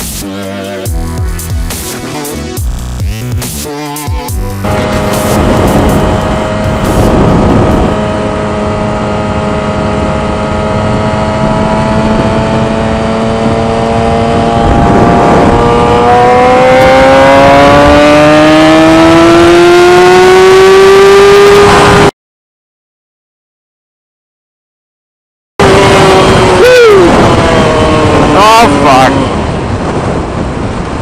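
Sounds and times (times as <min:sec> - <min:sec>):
motorcycle engine accelerating: 0:00.0 - 0:22.1, 0:25.6 - 0:30.6
wind noise: 0:04.6 - 0:22.1, 0:25.6 - 0:31.0.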